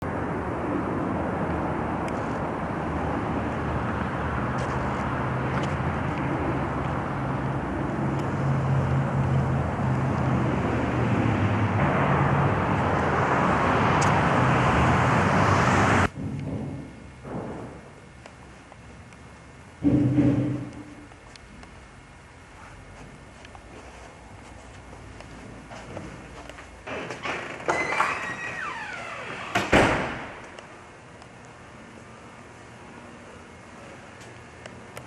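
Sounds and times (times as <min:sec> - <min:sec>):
vehicle engine hum: 0:00.0 - 0:27.8
road noise: 0:00.0 - 0:35.0.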